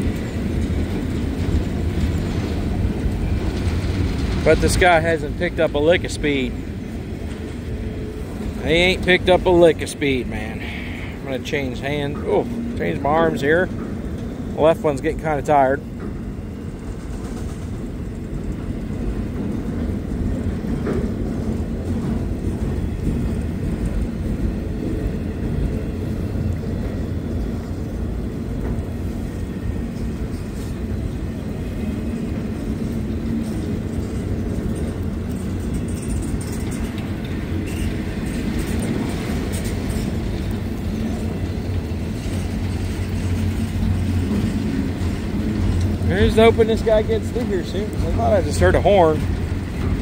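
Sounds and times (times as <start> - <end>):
freight train rumbling on rails: 0.0 - 50.0.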